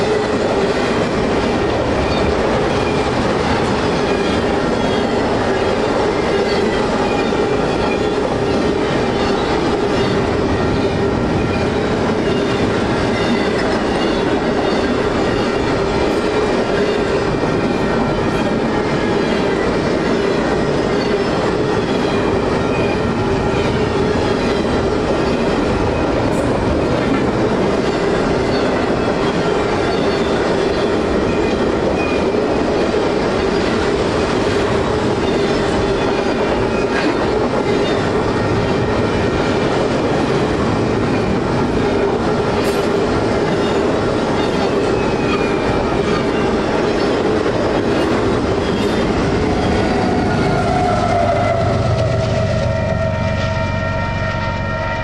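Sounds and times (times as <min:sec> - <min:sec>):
train wheels rumbling on rails: 0:00.0 - 0:55.0
crossing bell ringing: 0:02.0 - 0:34.3.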